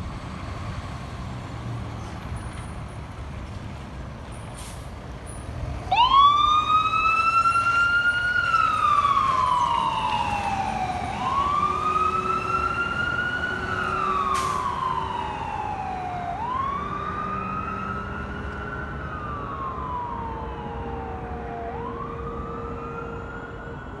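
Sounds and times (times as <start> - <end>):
fire truck siren wailing: 5.6 - 24.0.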